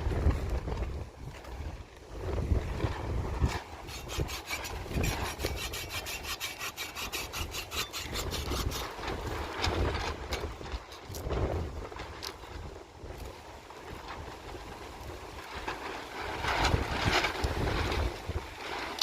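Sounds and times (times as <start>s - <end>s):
rhythmic scraping strokes: 3.8s - 9.2s.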